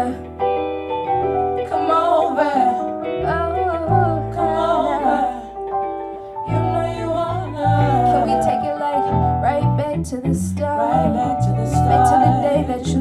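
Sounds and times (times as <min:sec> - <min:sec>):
held chords: 0:00.0 - 0:13.0
deep bass notes: 0:02.7 - 0:13.0
woman singing melodic runs: 0:06.5 - 0:13.0.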